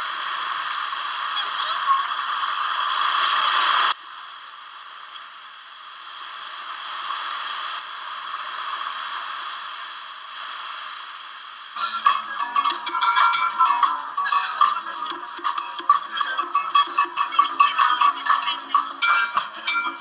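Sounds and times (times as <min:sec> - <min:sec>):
camcorder audio hiss: 0:10.3 - 0:20.0.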